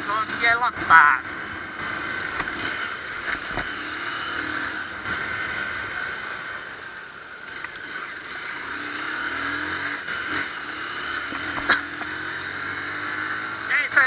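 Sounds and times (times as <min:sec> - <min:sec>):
motorcycle running: 0:00.0 - 0:14.0.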